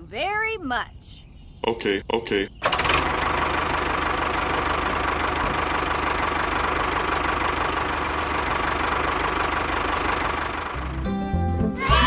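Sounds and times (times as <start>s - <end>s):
small engine chugging: 2.6s - 11.0s.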